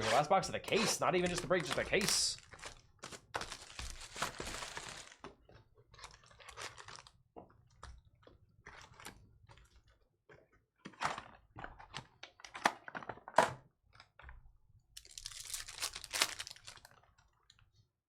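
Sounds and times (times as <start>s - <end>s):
pack wrapper tearing and crinkling: 0.8s - 5.2s, 6.0s - 7.2s, 15.0s - 17.0s
cardboard and wrapper clicks and crackles: 1.2s - 7.2s, 15.0s - 17.4s.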